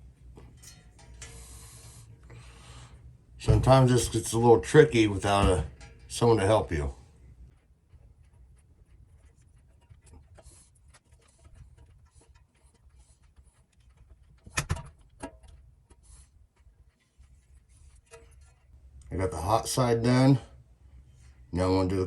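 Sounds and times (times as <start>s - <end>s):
electrical wires clicking and rustling: 3.4s - 19.2s.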